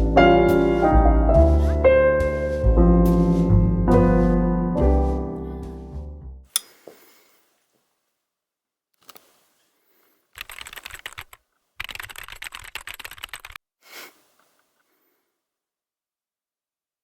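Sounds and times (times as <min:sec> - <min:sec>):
typing on computer keyboard: 0:10.4 - 0:13.6.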